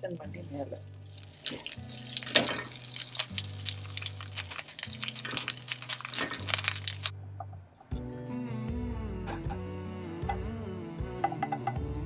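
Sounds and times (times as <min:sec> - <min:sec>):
food sizzling in hot oil: 0:00.0 - 0:07.1
background music with low chords: 0:00.0 - 0:12.0.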